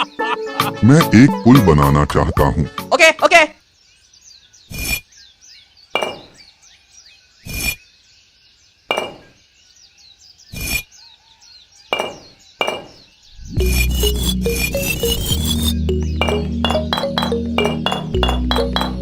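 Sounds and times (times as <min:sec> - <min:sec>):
music: 0:00.0 - 0:03.0, 0:13.5 - 0:19.0
faint birdsong: 0:00.0 - 0:19.0.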